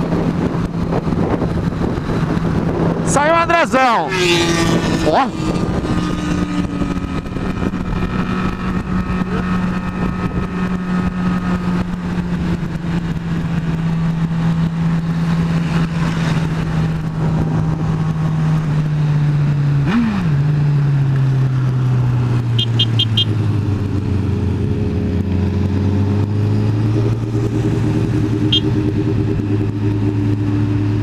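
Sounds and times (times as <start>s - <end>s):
wind noise: 0.0s - 18.8s
motorcycle engine at speed: 0.0s - 31.0s
engine rev blip: 22.6s - 23.4s, 28.3s - 29.0s
short high beeps: 22.6s - 23.4s.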